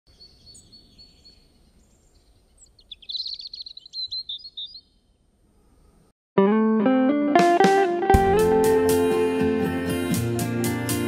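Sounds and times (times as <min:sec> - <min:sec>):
songbird chirping and trilling: 0:00.1 - 0:06.1.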